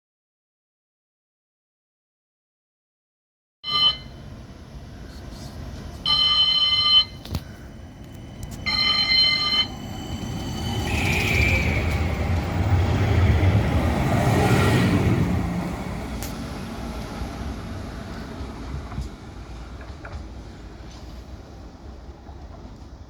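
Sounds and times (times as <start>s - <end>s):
tram bell ringing: 3.6s - 4.4s, 5.8s - 17.8s
tram running noise: 3.7s - 23.0s.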